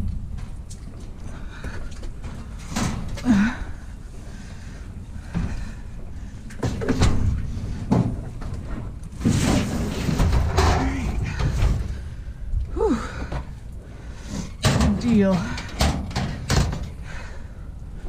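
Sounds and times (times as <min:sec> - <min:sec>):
metal clunking against metal: 0:14.6 - 0:17.0.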